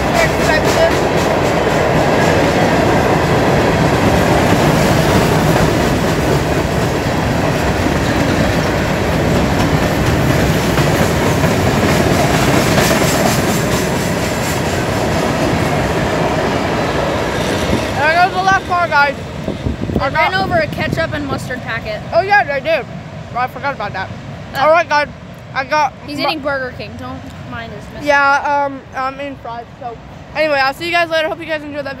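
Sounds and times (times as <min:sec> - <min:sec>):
train wheels rumbling on rails: 0:00.0 - 0:24.5.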